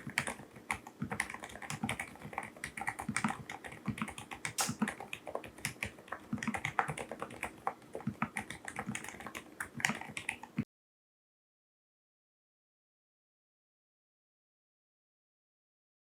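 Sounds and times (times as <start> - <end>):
fast typing on keyboard: 0.0 - 10.6.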